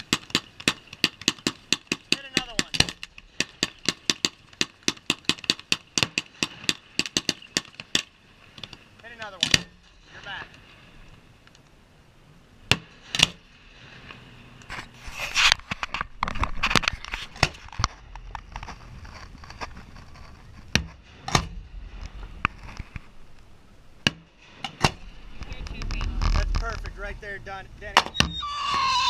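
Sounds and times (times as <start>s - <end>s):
fireworks crackling pops: 0.0s - 9.8s, 14.6s - 27.2s.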